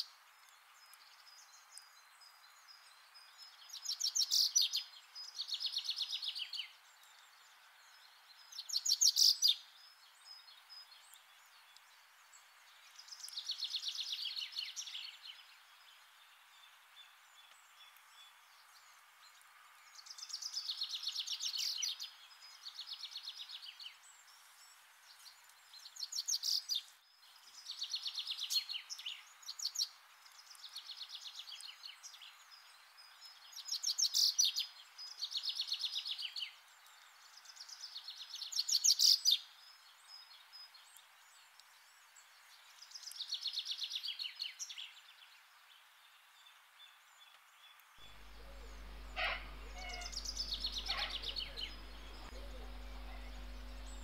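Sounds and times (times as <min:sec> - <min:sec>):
faint steady hiss: 0:00.0 - 0:54.0
animal chirping trills: 0:48.2 - 0:54.0.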